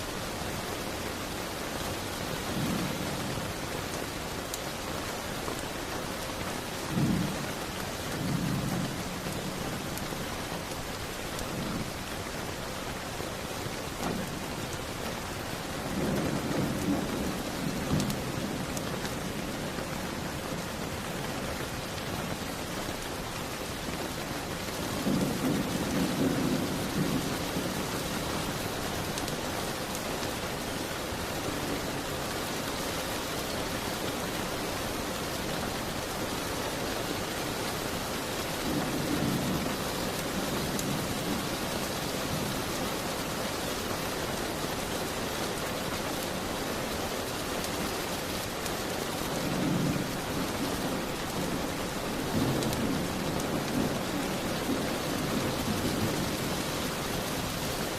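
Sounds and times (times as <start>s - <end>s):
steady rain: 0.0s - 57.9s
distant thunder rumbling: 2.3s - 4.4s, 6.8s - 12.1s, 15.6s - 30.6s, 38.4s - 43.3s, 49.1s - 57.9s.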